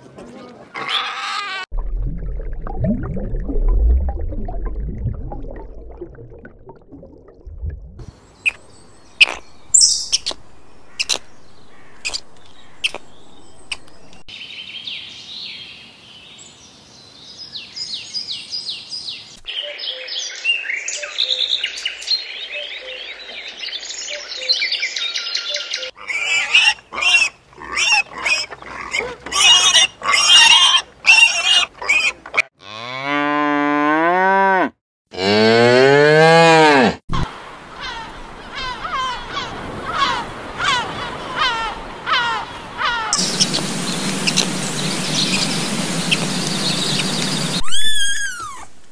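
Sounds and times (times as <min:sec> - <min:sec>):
high chirping and trilling calls: 0:08.3 - 0:14.3, 0:41.4 - 0:48.7
cattle mooing: 0:32.6 - 0:37.0.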